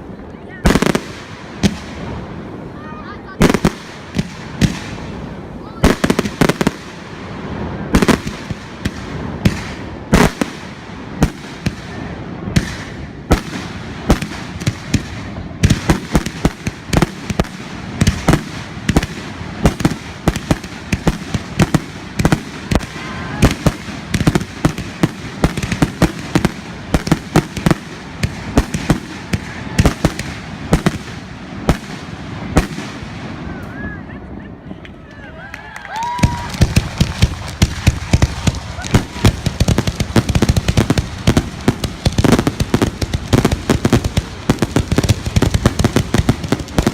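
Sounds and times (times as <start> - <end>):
fireworks bangs: 0.0 - 34.6, 36.0 - 46.9.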